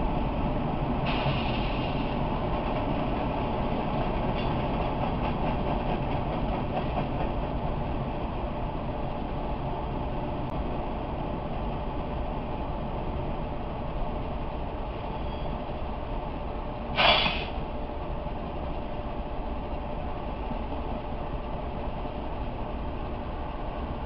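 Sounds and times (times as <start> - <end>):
freight train rumble: 0.0 - 24.0
short loud hiss: 16.9 - 17.6.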